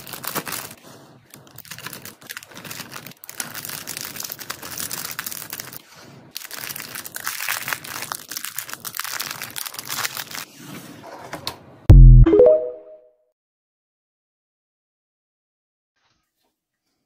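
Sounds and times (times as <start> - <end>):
packaging crinkling and rustling: 0.0 - 10.8.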